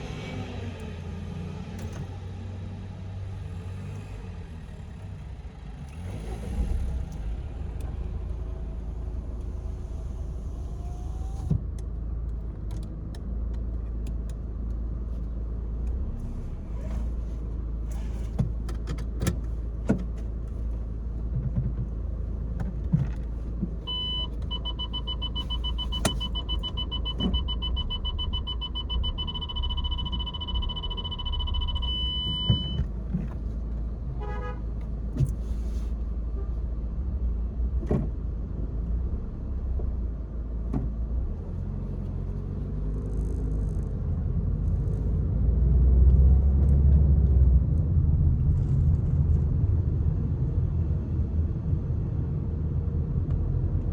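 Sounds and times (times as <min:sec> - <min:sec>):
car engine running: 0:01.6 - 0:34.2
steady high beep tone: 0:23.9 - 0:32.8.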